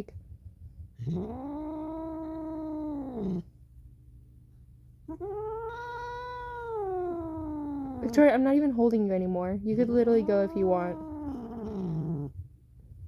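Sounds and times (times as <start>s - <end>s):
cat yowling: 1.0s - 3.4s, 5.1s - 8.2s, 9.8s - 12.3s.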